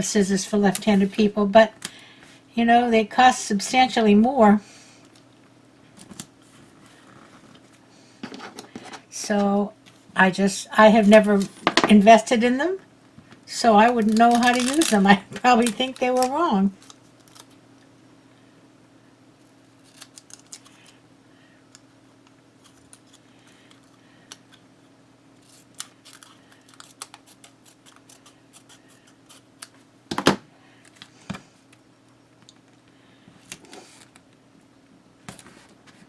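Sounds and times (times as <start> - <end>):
faint steady hum: 0.0 - 36.0
scissors snipping paper: 13.9 - 17.5, 19.8 - 20.7, 25.4 - 29.7.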